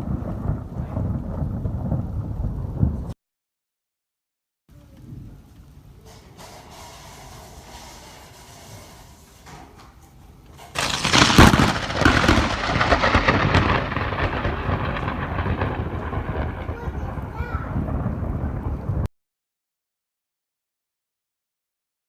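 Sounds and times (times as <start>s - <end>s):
thunderclap with heavy rumble: 0.0s - 3.2s, 4.8s - 6.0s, 10.7s - 19.1s
rain hissing: 4.7s - 19.1s.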